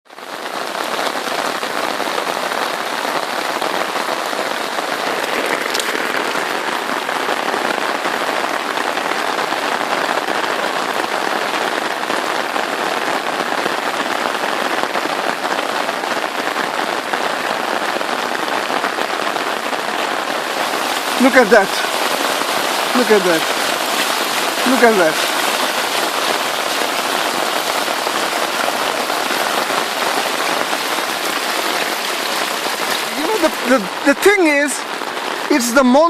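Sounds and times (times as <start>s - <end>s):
rain pattering: 0.1s - 36.0s.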